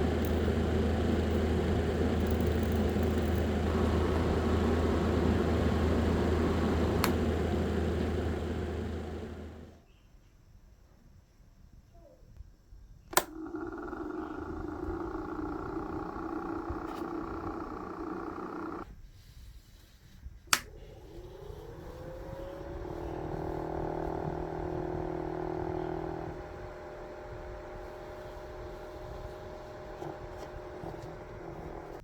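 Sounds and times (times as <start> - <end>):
small fan motor humming: 0.0 - 9.8, 13.1 - 18.9, 20.4 - 32.0
switch click: 7.0 - 7.3.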